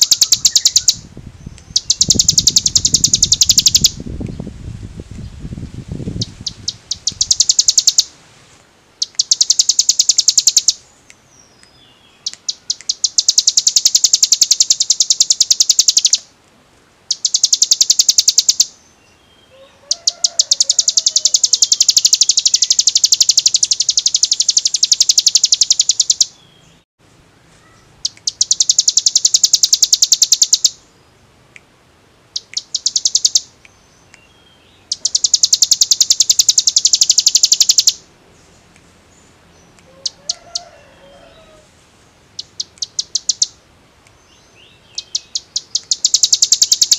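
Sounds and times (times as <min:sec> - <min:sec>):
bird singing a fast trill: 0:00.0 - 0:04.0, 0:06.2 - 0:08.1, 0:09.0 - 0:16.3, 0:17.1 - 0:26.8, 0:27.7 - 0:31.0, 0:32.3 - 0:38.1, 0:42.3 - 0:43.6, 0:44.2 - 0:46.9.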